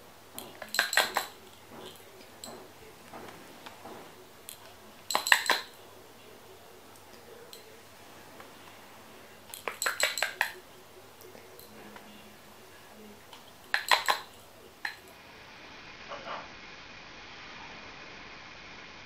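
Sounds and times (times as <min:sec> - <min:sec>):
faint steady hiss: 0:00.0 - 0:19.0
cutlery clinking against dishes: 0:00.4 - 0:05.8, 0:07.0 - 0:07.8, 0:09.5 - 0:12.1, 0:13.3 - 0:15.1.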